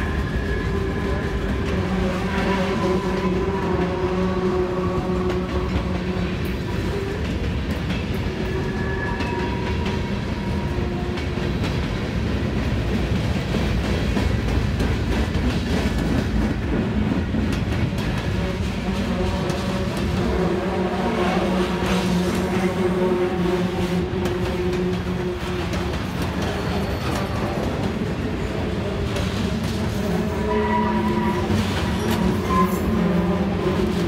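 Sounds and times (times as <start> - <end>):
rail clicks: 0.0 - 34.0
steel wheels rumbling on rail: 0.0 - 34.0.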